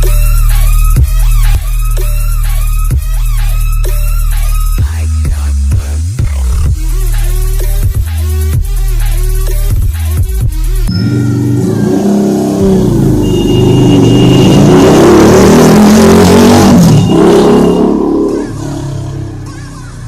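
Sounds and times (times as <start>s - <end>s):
motorcycle engine revving: 10.3s - 20.0s.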